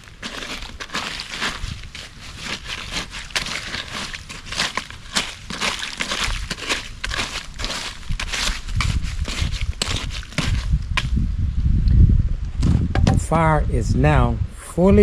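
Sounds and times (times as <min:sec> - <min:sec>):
embers and ash crunching: 0:00.0 - 0:11.2.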